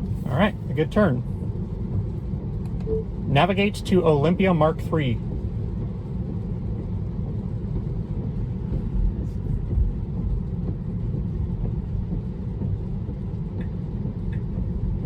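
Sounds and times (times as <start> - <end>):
road and tyre rumble: 0.0 - 15.0.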